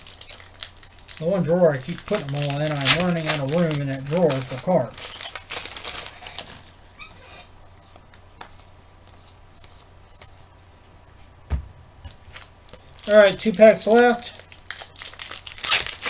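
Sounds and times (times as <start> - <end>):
foil wrapper crinkling: 0.0 - 6.8, 12.1 - 16.0
dull thump: 11.4 - 12.1.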